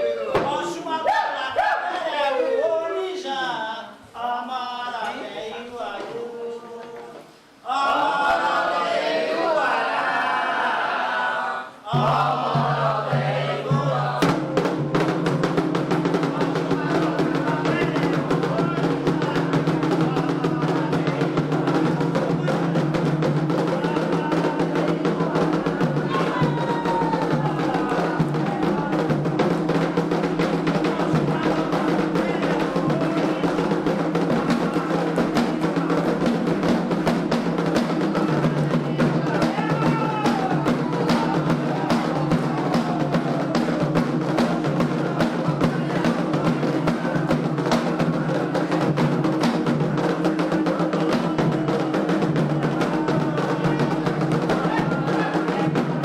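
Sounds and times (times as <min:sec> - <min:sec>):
voices singing: 0:00.0 - 0:56.0
fast hand drumming: 0:12.0 - 0:56.0.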